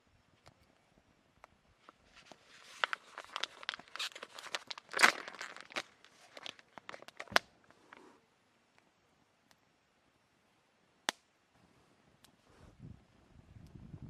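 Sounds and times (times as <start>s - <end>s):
rustling and crinkling: 1.8s - 8.2s.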